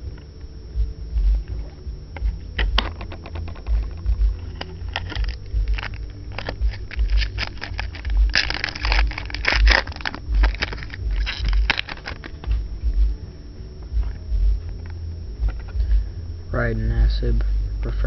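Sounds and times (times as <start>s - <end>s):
dull low thuds: 0.0s - 17.8s
foil wrapper crackling: 3.5s - 12.6s.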